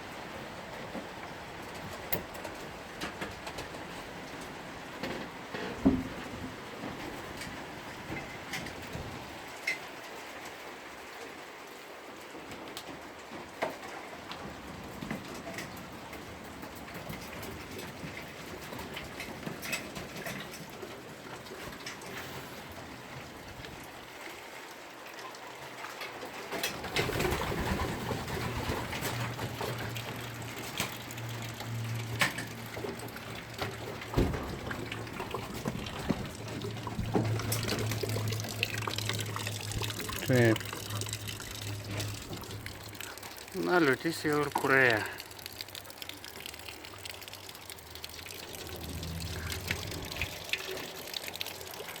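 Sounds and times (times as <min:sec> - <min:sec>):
rainwater running and dripping: 0:00.0 - 0:52.0
low hum: 0:48.0 - 0:50.8.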